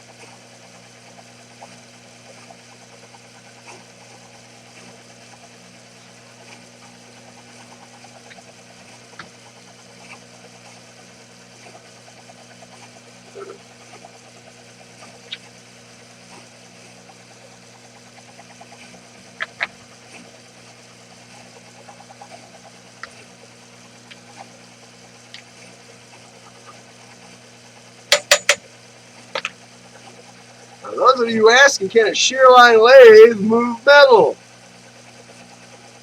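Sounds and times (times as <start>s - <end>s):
small ticks: 15.0s - 16.5s, 21.3s - 23.3s, 23.9s - 27.3s.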